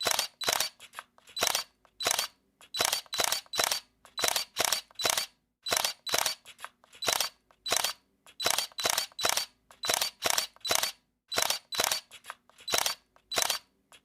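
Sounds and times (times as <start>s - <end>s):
camera shutter clicking: 0.0s - 13.7s.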